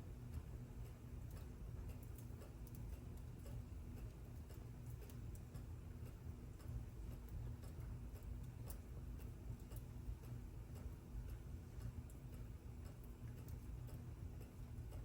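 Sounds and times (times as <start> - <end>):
low steady rumble: 0.0 - 15.0
mechanical clock ticking: 0.0 - 15.0.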